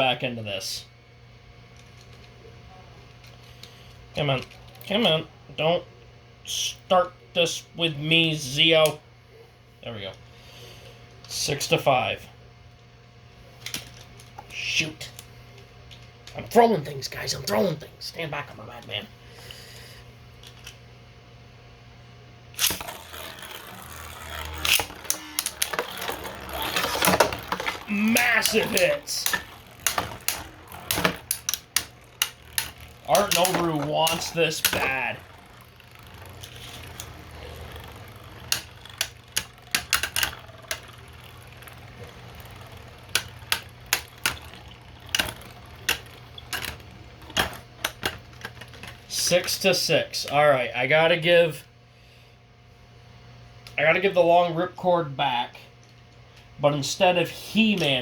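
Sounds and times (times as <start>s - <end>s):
steady low hum: 0.0s - 58.0s
spinning tops clashing: 22.6s - 49.4s.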